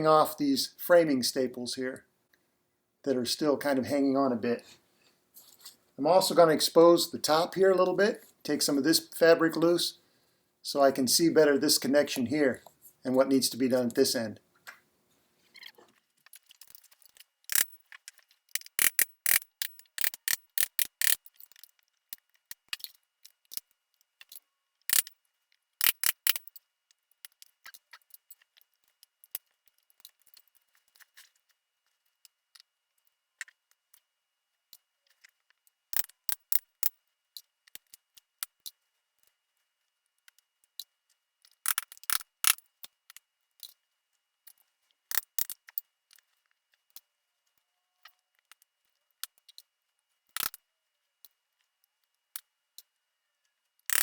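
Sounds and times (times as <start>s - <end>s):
staples being pried and clipped: 17.5s - 21.7s, 24.9s - 25.1s, 25.8s - 26.5s, 36.0s - 36.6s, 41.7s - 42.6s, 45.1s - 45.6s, 50.4s - 50.6s.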